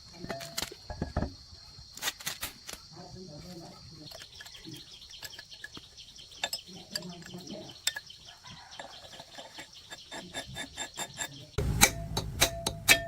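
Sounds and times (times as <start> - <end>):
birds chirping: 3.6 - 13.0
sharp clicks and taps: 11.6 - 13.0.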